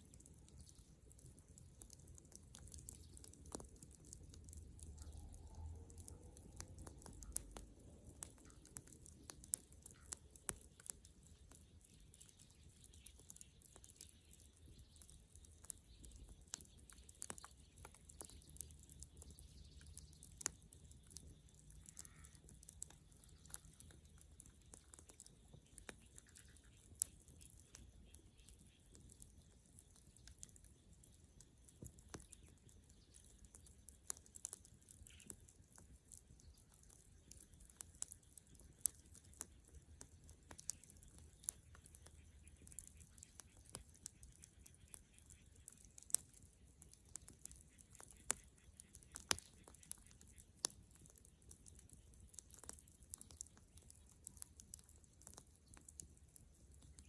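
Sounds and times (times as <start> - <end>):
bonfire crackling: 0.0 - 57.0
faint low rumble: 4.4 - 8.8.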